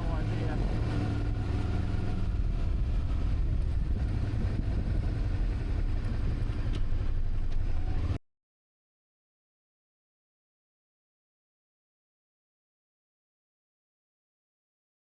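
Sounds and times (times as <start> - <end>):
vehicle rumble: 0.0 - 8.2.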